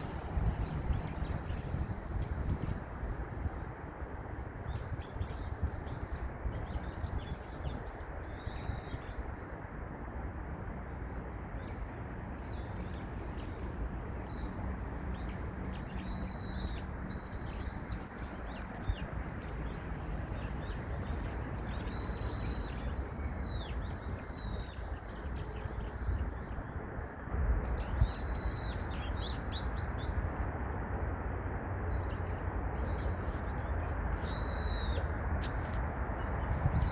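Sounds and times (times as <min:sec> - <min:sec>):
steady rushing noise: 0:00.0 - 0:04.6.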